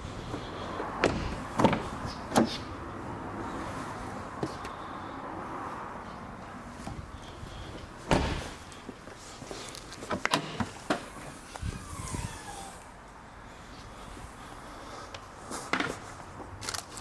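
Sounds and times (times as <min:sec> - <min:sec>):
car door shutting: 0:01.0 - 0:02.6, 0:08.0 - 0:08.6, 0:10.1 - 0:12.8.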